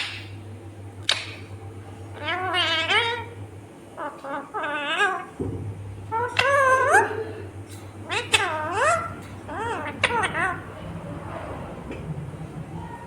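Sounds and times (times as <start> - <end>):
parrot screeching and warbling: 2.2 - 3.4, 4.0 - 5.4, 6.1 - 7.2, 8.0 - 10.8.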